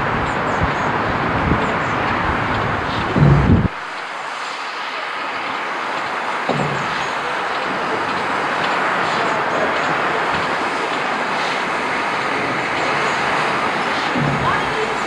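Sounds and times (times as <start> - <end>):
train wheels rumbling on rail: 0.0 - 15.0
sharp knock: 3.1 - 3.7.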